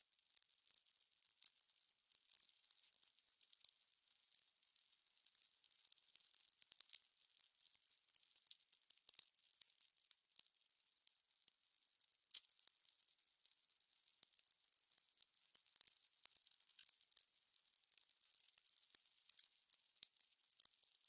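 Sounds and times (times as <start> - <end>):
fire crackling: 17.9 - 20.8.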